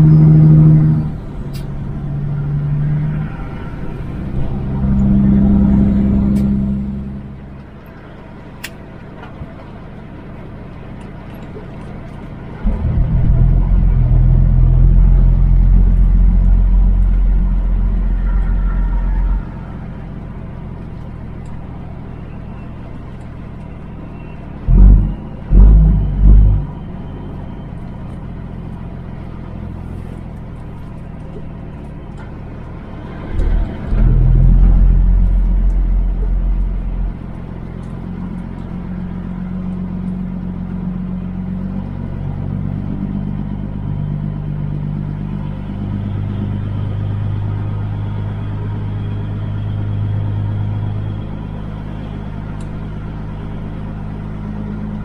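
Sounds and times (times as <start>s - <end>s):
road noise: 0.0s - 55.0s
truck engine drone: 0.0s - 55.0s
heavy low thumps: 12.7s - 18.2s.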